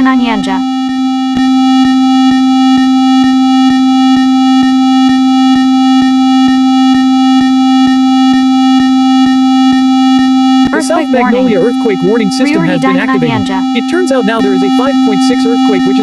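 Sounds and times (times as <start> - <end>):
buzzy electronic alert tone: 8.7 - 16.0.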